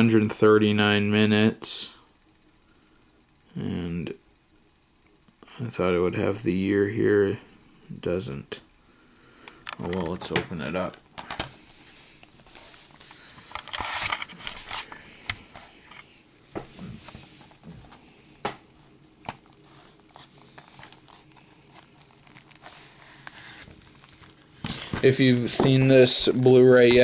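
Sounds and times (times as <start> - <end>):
plastic wrap tearing and crinkling: 18.8 - 27.0.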